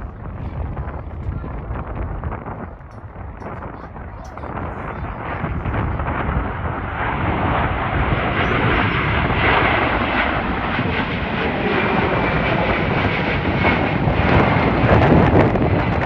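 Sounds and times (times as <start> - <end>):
jet airliner passing by: 0.0 - 16.0.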